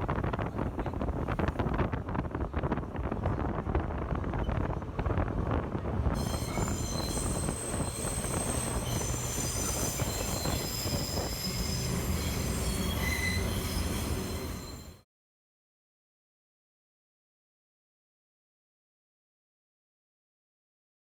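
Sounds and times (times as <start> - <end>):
subway train rumbling: 0.0 - 15.0
train wheels squealing: 6.2 - 15.0.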